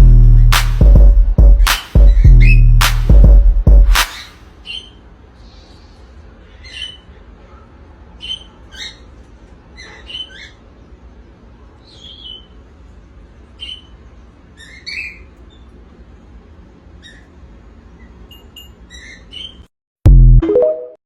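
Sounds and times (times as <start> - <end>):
cockatiels chirping and squeaking: 4.1 - 5.0, 6.5 - 7.6, 8.2 - 10.7, 11.8 - 12.6, 13.6 - 15.8, 17.0 - 17.4, 18.0 - 19.7.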